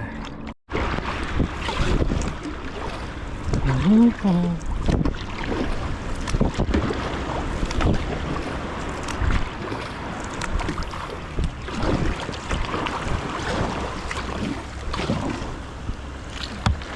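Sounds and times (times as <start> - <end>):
water sloshing: 0.0 - 16.9
paddle splashes: 0.2 - 16.9
wind buffeting microphone: 0.8 - 16.9.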